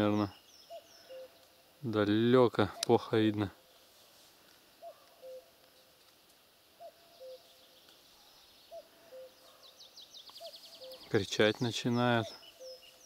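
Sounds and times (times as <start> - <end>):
quiet open-air background: 0.0 - 13.0.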